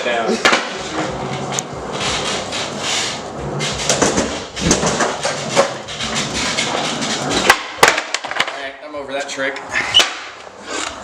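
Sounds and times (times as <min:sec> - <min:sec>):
skateboard wheels rolling: 0:00.4 - 0:08.5
skateboard clacking on floor: 0:03.7 - 0:08.6.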